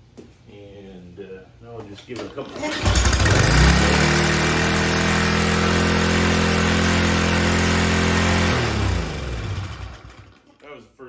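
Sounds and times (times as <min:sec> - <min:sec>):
recoil starter pull: 0:02.1 - 0:10.5
engine winding down: 0:02.3 - 0:10.5
small engine idling: 0:02.4 - 0:10.5.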